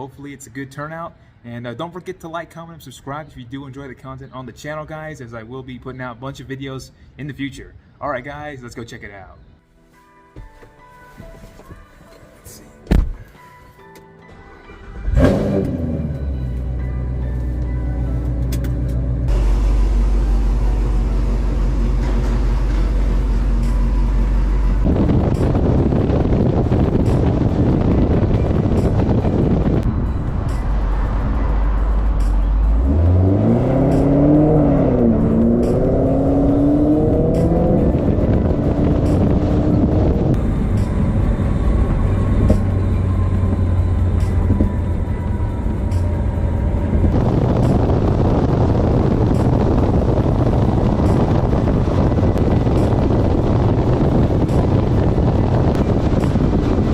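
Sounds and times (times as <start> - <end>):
car engine cruising: 14.7 - 56.9
road noise: 14.7 - 56.9
wind buffeting microphone: 24.8 - 46.0, 46.7 - 56.9.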